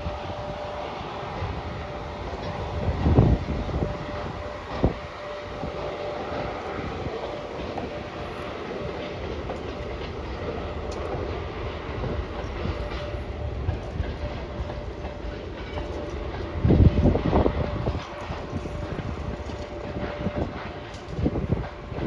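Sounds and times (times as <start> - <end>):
freight train wheels clicking: 0.0 - 22.0.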